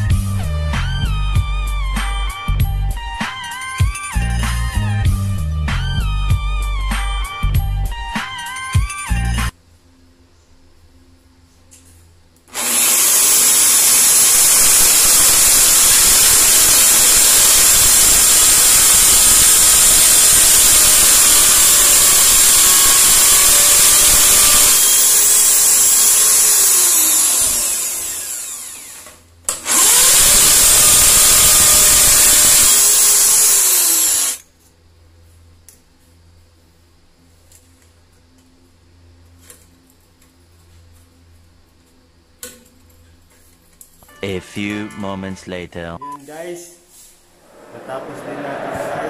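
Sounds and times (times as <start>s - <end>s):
electric drill boring into tile: 12.5s - 34.4s.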